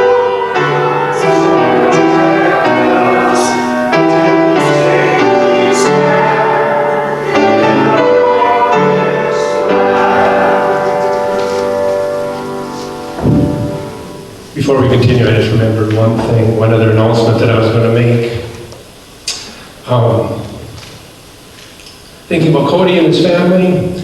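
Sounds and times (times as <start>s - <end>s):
piano accompaniment: 0.0s - 18.5s
congregation singing a hymn: 0.0s - 20.8s.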